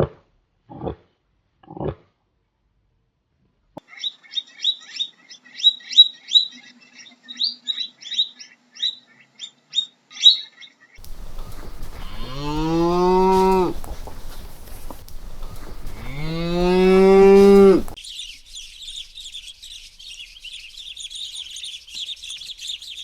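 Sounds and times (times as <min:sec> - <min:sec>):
cow mooing: 0:11.0 - 0:18.0
bird chirping: 0:11.0 - 0:23.0.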